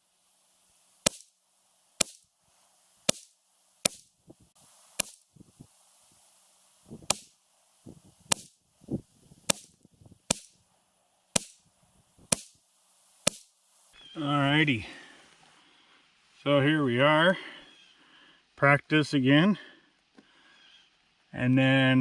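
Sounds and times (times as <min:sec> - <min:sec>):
rifle shots cracking: 0:09.5 - 0:10.6.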